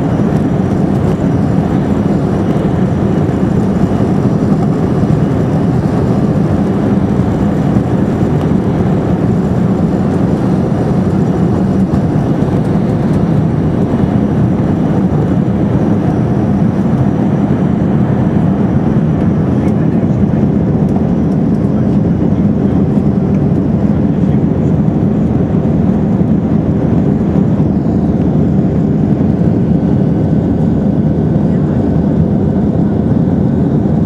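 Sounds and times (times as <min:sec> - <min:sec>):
jet engines roaring in cabin: 0:00.0 - 0:34.0.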